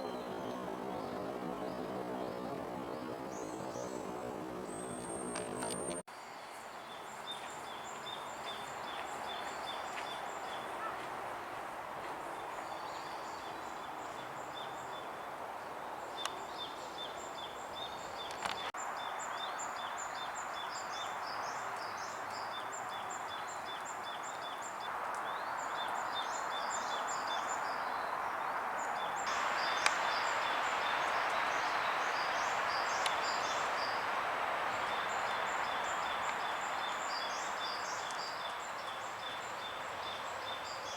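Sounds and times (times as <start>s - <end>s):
small birds chirping: 0.0s - 6.0s, 16.2s - 40.9s
steady background hiss: 0.0s - 40.9s.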